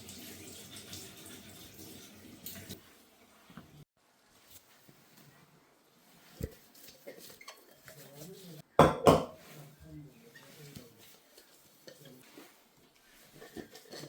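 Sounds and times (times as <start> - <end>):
dishes clattering: 8.8 - 9.4, 13.4 - 14.0.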